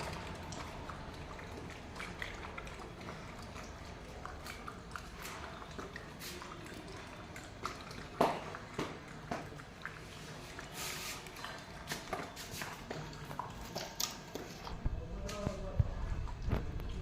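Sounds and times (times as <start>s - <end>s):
dog eating with crunches: 0.0s - 14.8s.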